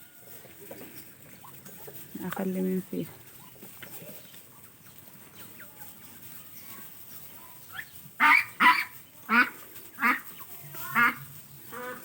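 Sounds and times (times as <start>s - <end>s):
ducks quacking: 7.6s - 12.0s
soft duck calls: 8.2s - 10.2s, 10.8s - 12.0s.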